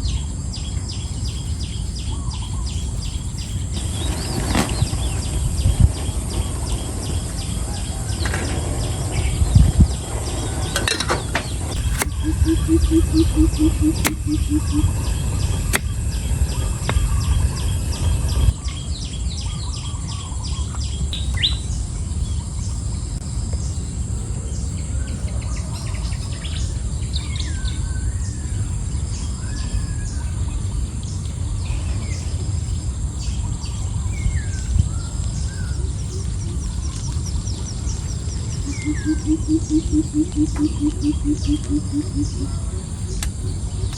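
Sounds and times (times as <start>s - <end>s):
birds chirping and calling: 0.0s - 21.6s, 33.1s - 43.9s
high insect-like whine: 0.0s - 43.9s
low rumble: 1.2s - 19.2s
quick low pulses: 11.5s - 18.5s
sharp clicks: 11.7s - 14.9s, 15.7s - 16.0s.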